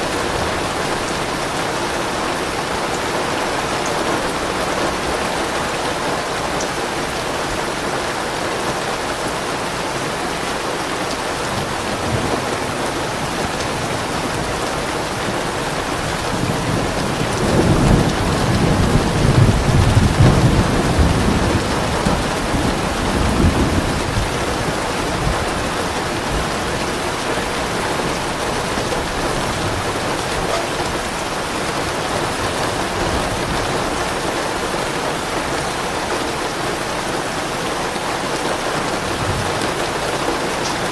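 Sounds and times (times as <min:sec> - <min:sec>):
heavy rain: 0:00.0 - 0:40.9
soft roll of thunder: 0:11.6 - 0:26.6.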